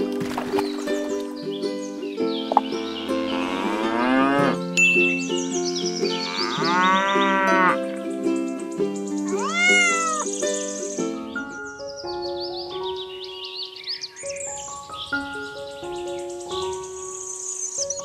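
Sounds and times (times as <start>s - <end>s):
background music: 0.0s - 18.0s
cows mooing: 3.0s - 4.7s, 6.2s - 7.8s
cat meowing: 9.3s - 10.3s.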